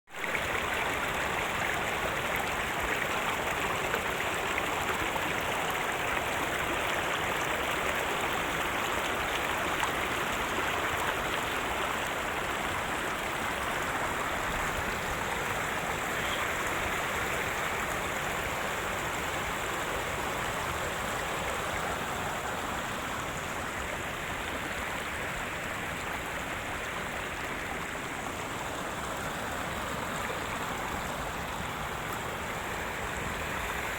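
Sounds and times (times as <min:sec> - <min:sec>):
water flowing over rocks: 0:00.1 - 0:33.9.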